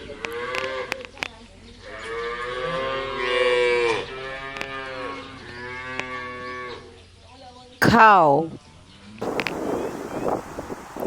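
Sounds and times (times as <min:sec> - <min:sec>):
cow mooing: 0:01.9 - 0:06.8.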